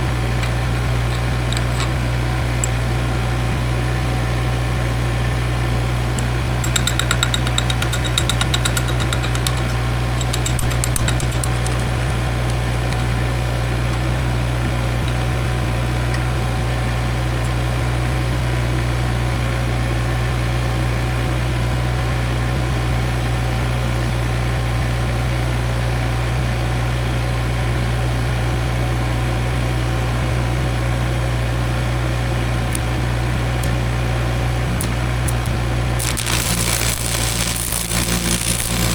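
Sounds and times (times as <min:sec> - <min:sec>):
engine idling: 0:00.0 - 0:38.9
fine crackling: 0:35.3 - 0:38.9.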